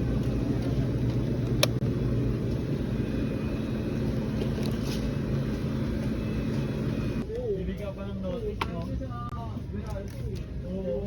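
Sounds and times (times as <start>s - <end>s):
engine humming: 0.0s - 7.3s.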